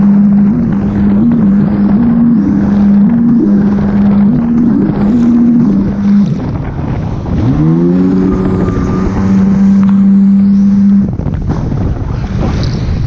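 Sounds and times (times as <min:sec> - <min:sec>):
jet ski engine revving: 0:00.0 - 0:13.0
water rushing: 0:00.0 - 0:13.0.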